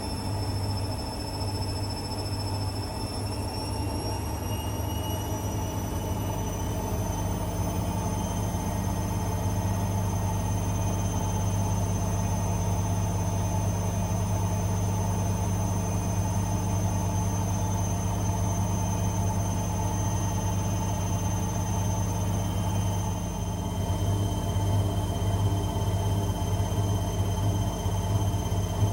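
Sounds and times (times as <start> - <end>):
washing machine humming: 0.0 - 28.9.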